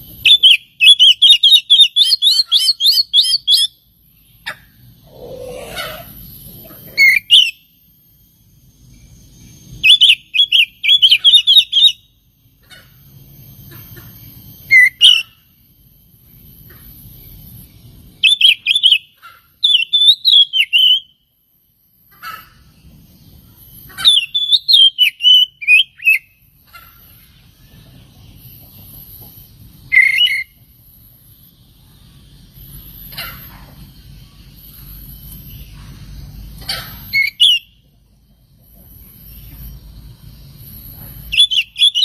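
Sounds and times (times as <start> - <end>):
bird singing warbling phrases: 0.1 - 7.8, 8.9 - 12.9, 13.7 - 15.5, 18.2 - 21.2, 22.1 - 29.1, 29.8 - 30.6, 36.6 - 37.8, 41.3 - 42.0.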